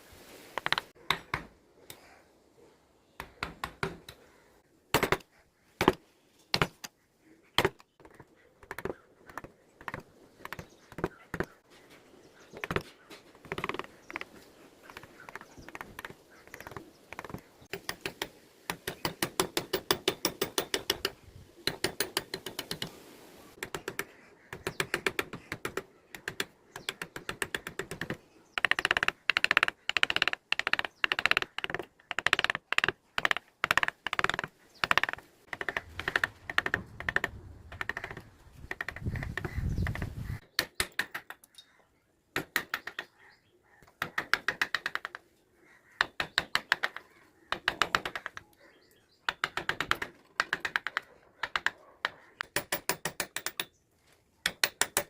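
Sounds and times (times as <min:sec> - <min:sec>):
mallet tapping carving chisel: 0:17.2 - 0:21.1, 0:24.6 - 0:39.0, 0:47.6 - 0:48.4, 0:52.4 - 0:53.7.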